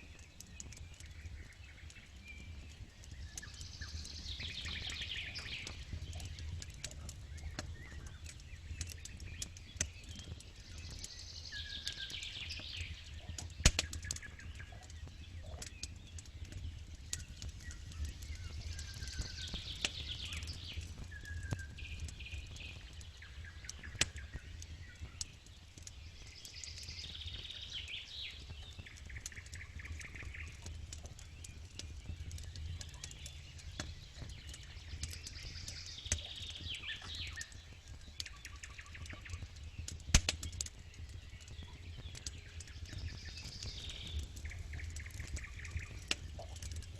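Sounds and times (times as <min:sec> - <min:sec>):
campfire crackling and popping: 0:00.0 - 0:46.9
songbird singing: 0:00.0 - 0:46.9.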